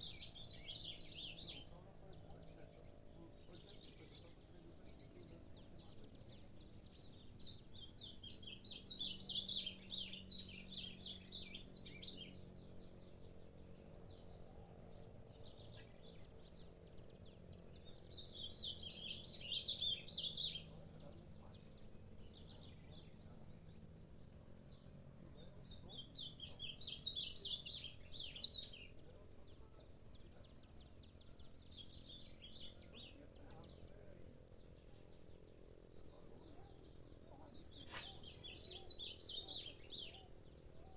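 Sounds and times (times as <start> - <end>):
finch chirping: 25.7 - 30.5.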